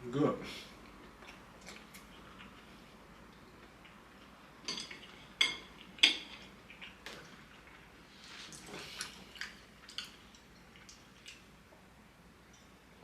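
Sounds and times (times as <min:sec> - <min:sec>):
utensils clinking against a dish: 0:04.6 - 0:06.5.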